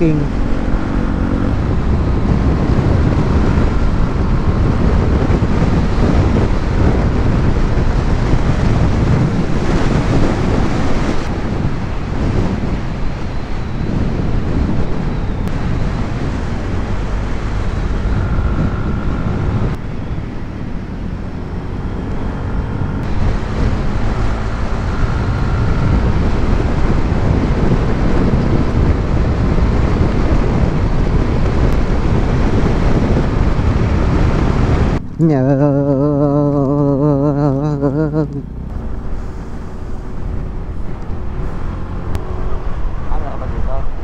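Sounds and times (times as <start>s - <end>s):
wind rushing over microphone: 0.0s - 44.0s
motorcycle engine running: 15.5s - 43.6s.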